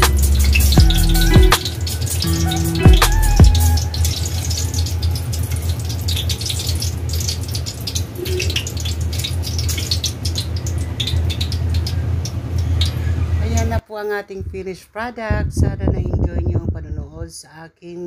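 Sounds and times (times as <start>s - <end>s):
food sizzling in hot oil: 0.0s - 13.4s.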